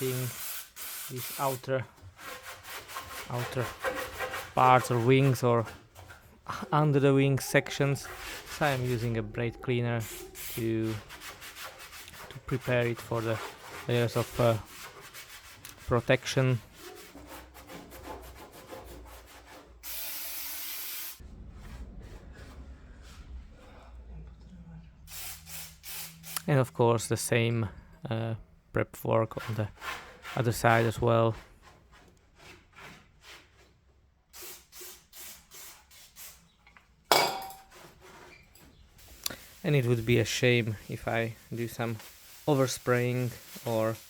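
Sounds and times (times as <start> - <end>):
aerosol spray hiss: 0.0 - 1.6, 19.8 - 21.2, 25.1 - 26.4, 39.0 - 39.9, 41.4 - 44.0.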